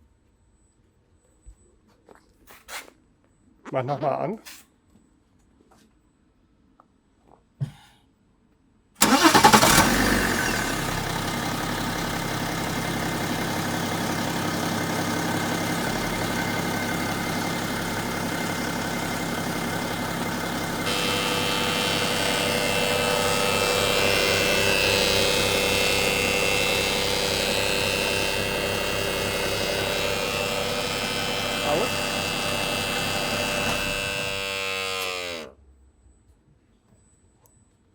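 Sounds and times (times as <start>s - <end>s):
car engine starting and idling: 9.0s - 35.5s
steady whine: 10.5s - 35.5s.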